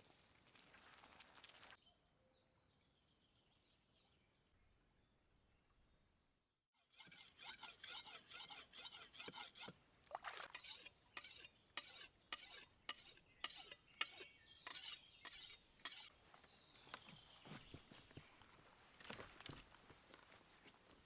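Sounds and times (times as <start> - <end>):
kitchen utensil scraping: 6.9 - 9.7, 10.5 - 16.1.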